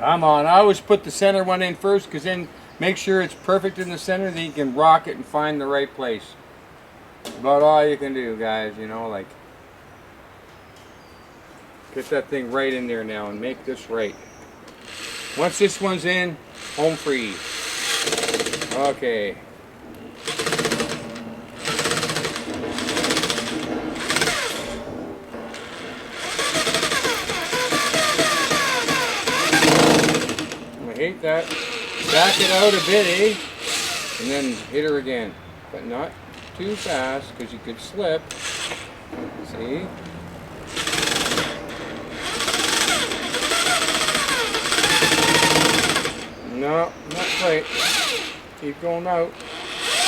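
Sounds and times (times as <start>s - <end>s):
power driver rattling: 14.6s - 50.0s.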